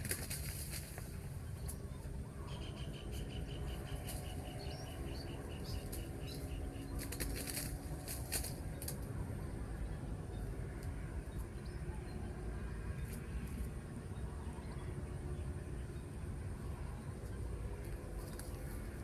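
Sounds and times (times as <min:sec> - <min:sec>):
dove wings flapping: 0:00.0 - 0:01.2, 0:07.0 - 0:09.0
steady low rumble: 0:00.0 - 0:19.0.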